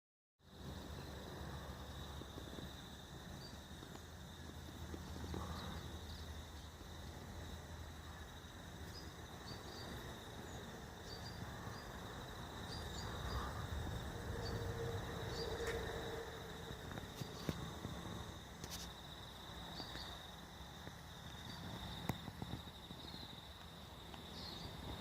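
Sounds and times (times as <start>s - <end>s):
crickets trilling: 0.5s - 25.0s
faint steady hum: 0.5s - 25.0s
low rumble: 10.6s - 18.5s.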